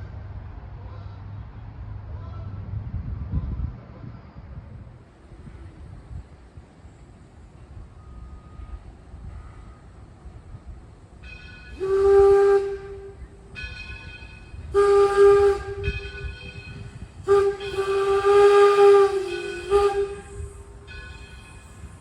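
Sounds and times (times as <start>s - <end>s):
steam hissing: 11.4s - 22.0s
steam locomotive whistle blasts: 11.7s - 22.0s.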